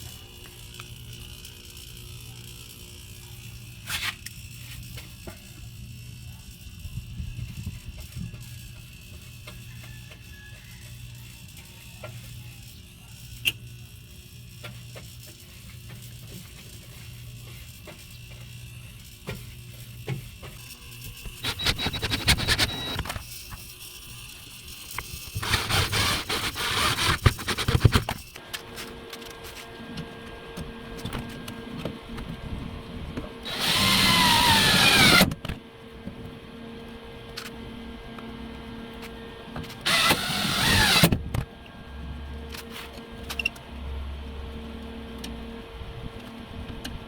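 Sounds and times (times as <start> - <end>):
steady hum: 20.8 - 47.0
power tool running: 21.2 - 23.2, 25.2 - 29.1, 33.4 - 35.6, 39.7 - 41.2.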